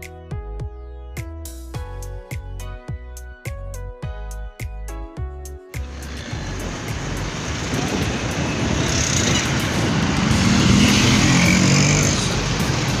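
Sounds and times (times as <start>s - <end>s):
road vehicle passing: 5.8s - 13.0s.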